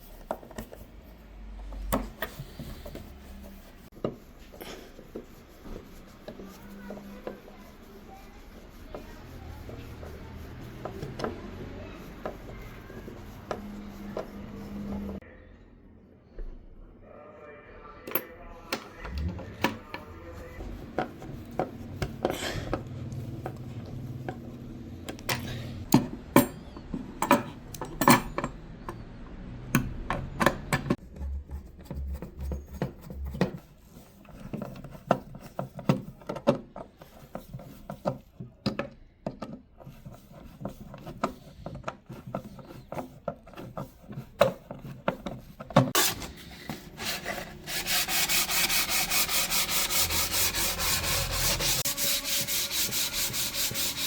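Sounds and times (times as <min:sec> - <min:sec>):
wood being sanded: 0:05.1 - 0:15.2, 0:46.0 - 0:54.0.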